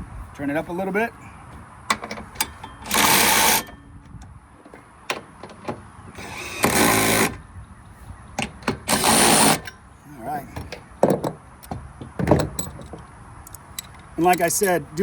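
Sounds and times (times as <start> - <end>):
power driver driving screws: 2.8 - 3.7, 6.2 - 7.4, 8.8 - 9.7
small clicks and knocks: 10.6 - 14.5.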